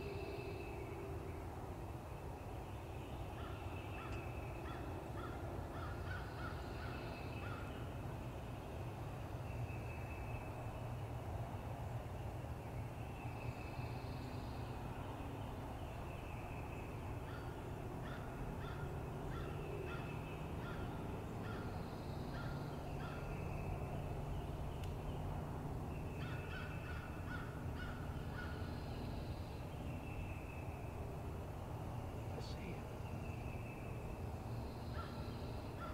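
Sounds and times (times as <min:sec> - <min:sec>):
harsh bird calls: 0:13.7 - 0:25.2, 0:25.9 - 0:31.1, 0:31.9 - 0:35.9
high-pitched birdsong phrases: 0:32.3 - 0:33.0.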